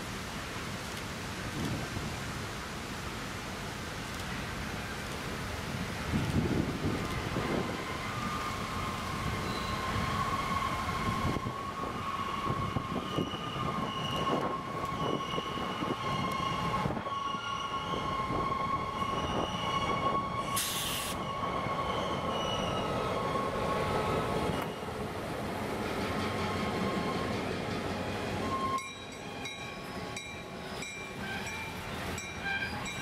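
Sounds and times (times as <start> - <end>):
high-pitched wheel squeal: 9.4 - 10.7
brief hiss: 20.4 - 21.3.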